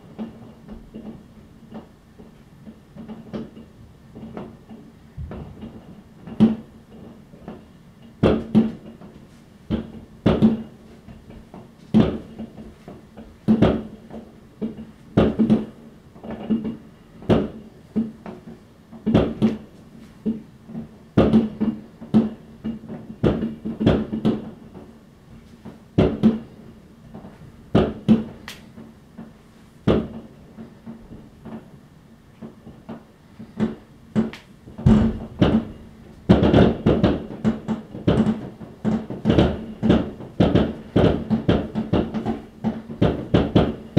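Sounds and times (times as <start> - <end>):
fireworks banging: 33.6 - 43.9.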